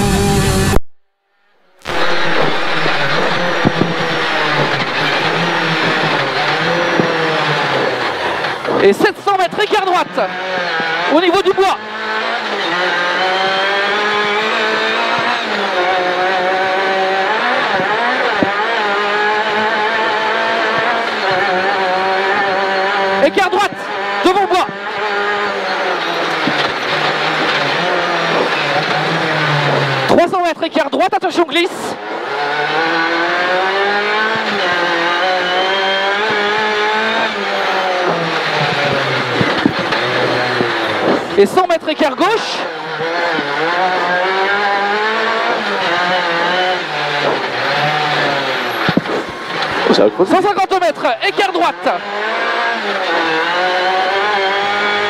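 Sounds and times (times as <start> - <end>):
rally car engine at high revs: 0.0 - 0.8, 1.5 - 55.0
tyre noise on dirt: 1.8 - 9.0, 19.7 - 30.2, 33.3 - 42.3, 43.0 - 50.3.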